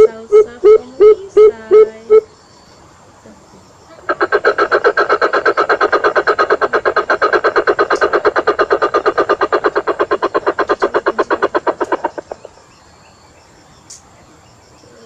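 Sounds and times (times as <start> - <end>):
bird call rapid run of notes: 4.0 - 12.6.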